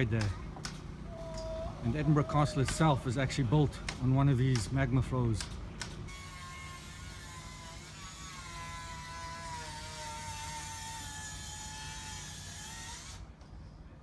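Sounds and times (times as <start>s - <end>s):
small motor whining: 6.1s - 13.3s.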